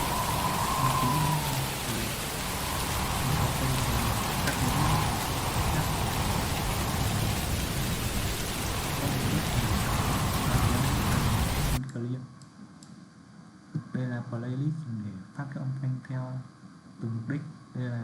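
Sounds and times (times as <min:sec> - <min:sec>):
low thunder rumbling: 0:00.0 - 0:11.8
steady rainfall hiss: 0:00.0 - 0:11.8.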